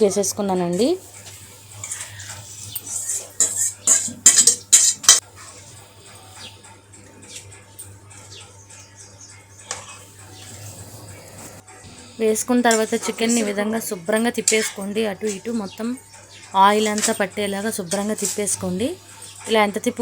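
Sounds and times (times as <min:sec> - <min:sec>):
metal utensil scraping a pan: 0:01.2 - 0:06.2, 0:09.6 - 0:11.6, 0:12.4 - 0:13.7, 0:14.3 - 0:15.5, 0:16.8 - 0:18.6.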